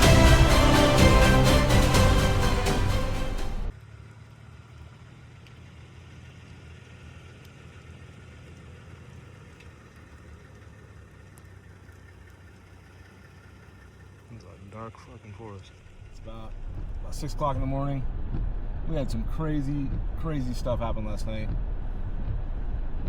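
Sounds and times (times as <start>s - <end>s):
music: 0.0s - 3.7s
truck engine idling: 0.0s - 14.9s.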